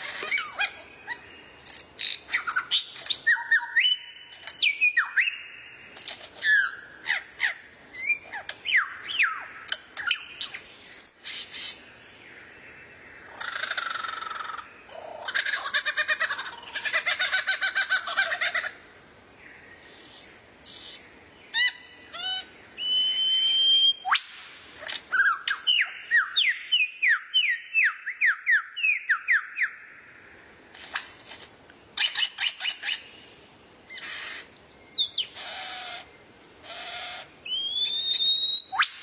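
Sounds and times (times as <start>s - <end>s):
songbird whistling: 0.2s - 5.6s, 19.9s - 24.3s, 32.0s - 33.1s, 36.7s - 39.0s.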